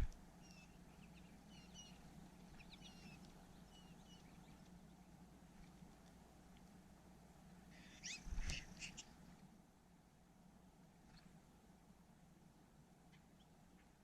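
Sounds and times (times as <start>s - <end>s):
small birds chirping: 0.0s - 6.9s, 7.5s - 9.3s, 13.0s - 14.0s
faint low hum: 0.0s - 14.0s.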